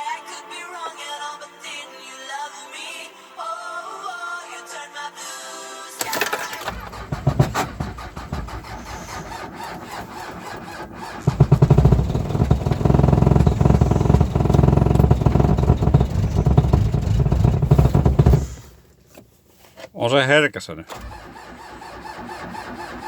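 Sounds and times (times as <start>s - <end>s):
engine firing: 6.0s - 18.8s, 20.9s - 23.0s
diesel engine starter cranking: 6.0s - 18.9s, 20.9s - 23.0s.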